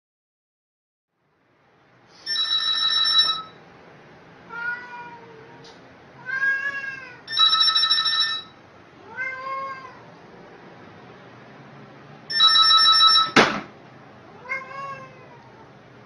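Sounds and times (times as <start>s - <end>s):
telephone ringing: 2.2s - 3.7s, 7.2s - 8.7s, 12.3s - 13.5s
cat meowing: 4.5s - 7.6s, 9.0s - 10.2s, 14.2s - 15.8s.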